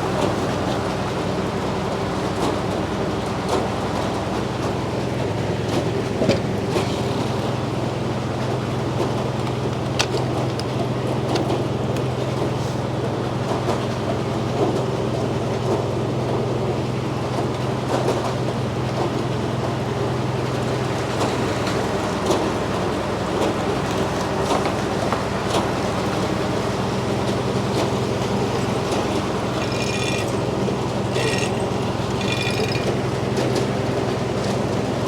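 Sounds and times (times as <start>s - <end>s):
sawmill droning: 25.7s - 35.0s.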